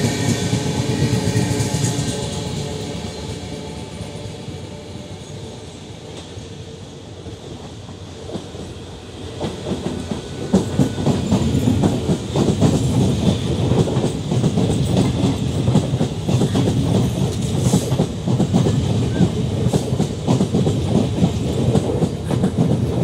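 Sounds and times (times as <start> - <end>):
train wheels clattering over rail joints: 9.4 - 23.0.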